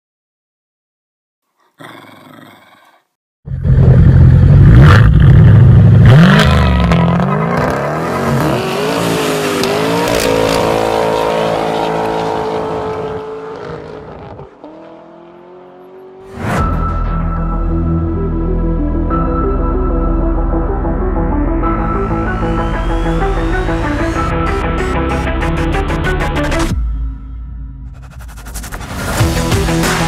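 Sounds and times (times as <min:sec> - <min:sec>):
car engine revving and idling: 0:03.5 - 0:16.3.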